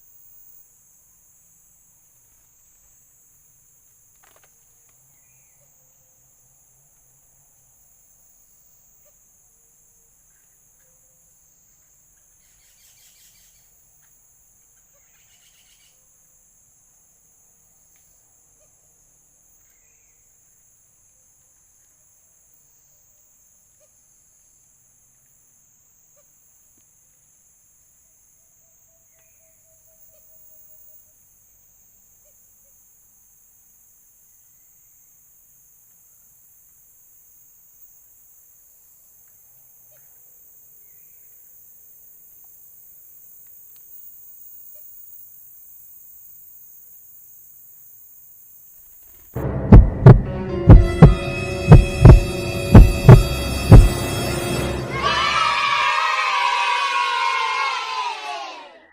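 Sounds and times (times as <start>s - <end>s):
higher insect trill: 0.0s - 21.0s
high-pitched insect chorus: 0.0s - 49.4s
faint ticks: 3.8s - 5.7s, 17.9s - 18.2s, 39.2s - 40.2s, 43.3s - 44.9s
insect trilling: 14.8s - 16.0s.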